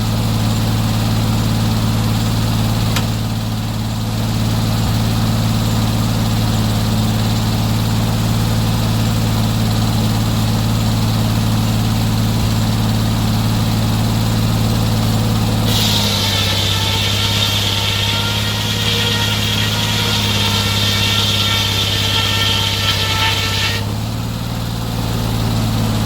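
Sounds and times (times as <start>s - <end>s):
sawmill engine running: 0.0s - 26.0s
high-pitched whine: 15.6s - 24.2s
hiss: 15.7s - 23.9s.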